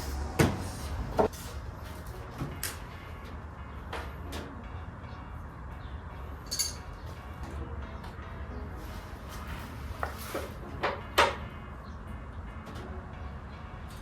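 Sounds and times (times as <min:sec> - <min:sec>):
steady low hum: 0:00.0 - 0:01.8.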